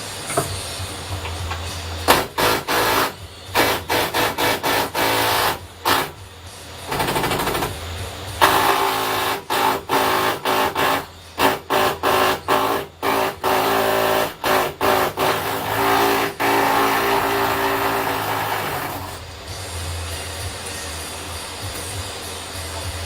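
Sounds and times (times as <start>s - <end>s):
power tool motor bursts: 2.1s - 6.2s, 8.4s - 19.2s.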